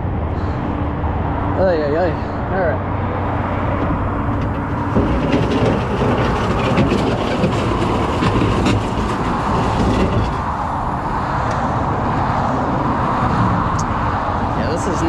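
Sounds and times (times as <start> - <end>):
truck engine and road rumble: 0.0 - 15.0
rattling and clanking: 3.3 - 11.6.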